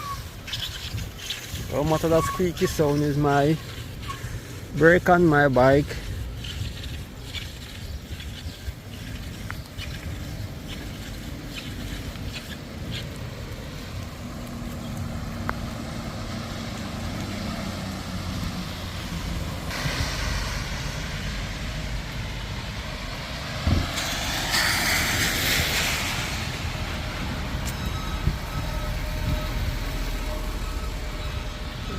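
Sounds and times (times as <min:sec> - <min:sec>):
wind on microphone: 0:00.0 - 0:05.2, 0:05.8 - 0:16.3, 0:17.6 - 0:31.9
short squeaks: 0:00.0 - 0:13.2, 0:23.8 - 0:31.9
tyre hiss on wet road: 0:00.1 - 0:31.9
vehicle passing: 0:13.2 - 0:31.9.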